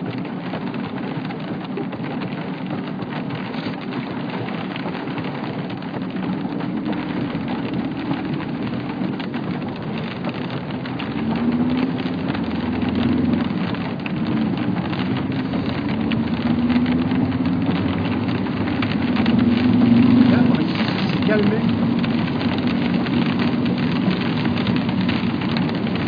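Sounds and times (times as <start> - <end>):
rain pattering hard: 0.0 - 26.0.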